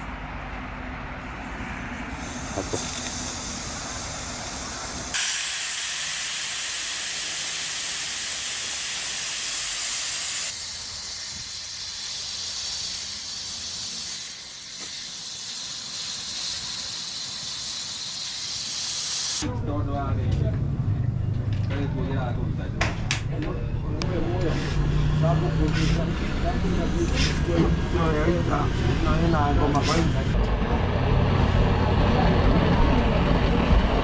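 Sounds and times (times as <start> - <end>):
spraying hiss: 2.1 - 19.5.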